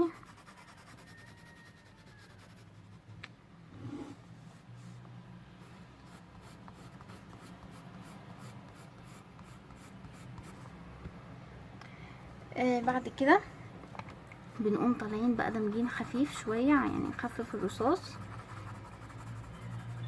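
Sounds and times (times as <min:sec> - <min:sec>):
pencil shading on paper: 0:00.0 - 0:03.0, 0:05.6 - 0:10.6, 0:14.6 - 0:20.0.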